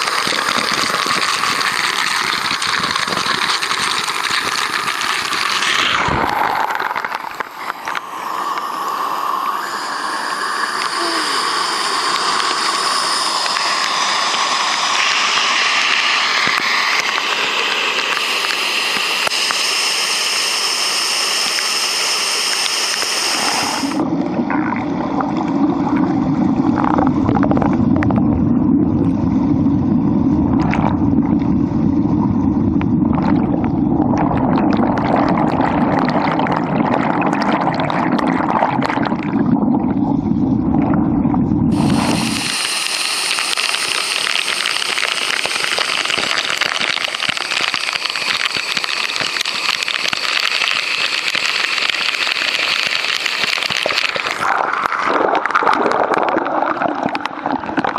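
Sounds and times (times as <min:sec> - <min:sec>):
waterfall pouring: 0:00.0 - 0:27.8, 0:41.7 - 0:57.9.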